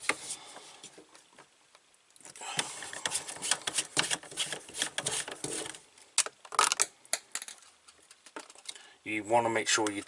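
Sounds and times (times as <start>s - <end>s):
parts clicking and rattling: 6.2s - 8.8s.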